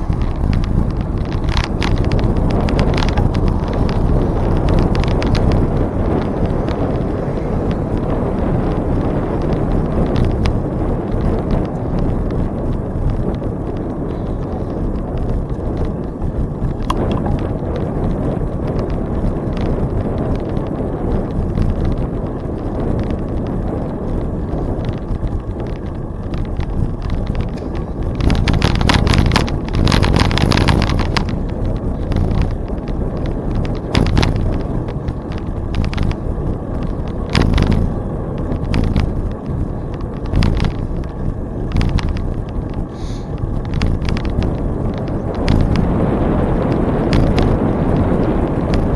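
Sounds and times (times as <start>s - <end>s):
wind rushing over microphone: 0.0s - 48.9s
scattered clicks: 11.2s - 17.9s, 23.0s - 45.9s.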